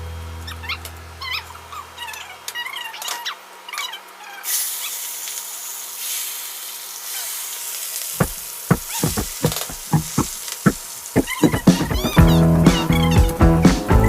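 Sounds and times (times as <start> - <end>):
meat sizzling in hot oil: 4.5 - 8.1
sharp knocks: 8.2 - 12.2.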